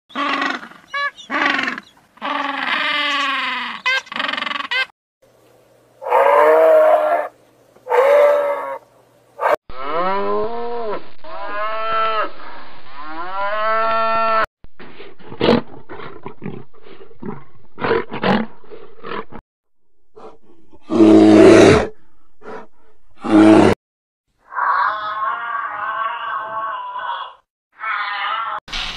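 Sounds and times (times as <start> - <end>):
loud harsh animal calls: 0.1 - 4.9, 6.0 - 12.4, 24.5 - 28.6
animal calls rising and falling: 6.0 - 14.4.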